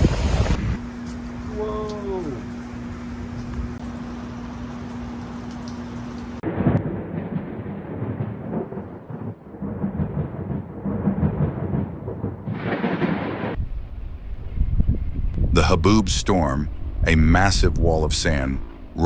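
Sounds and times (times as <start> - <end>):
thunder crash and rumbling: 6.4 - 15.6.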